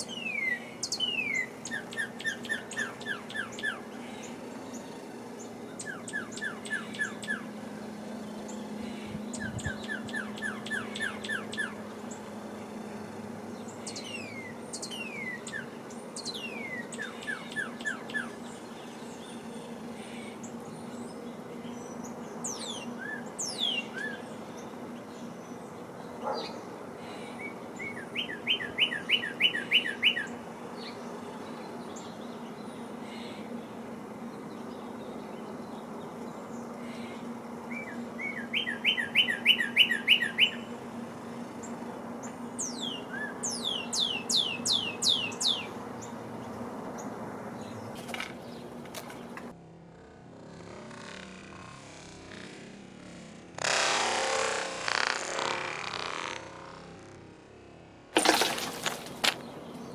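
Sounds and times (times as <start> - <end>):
songbirds singing: 0.0 - 49.5, 58.2 - 59.9.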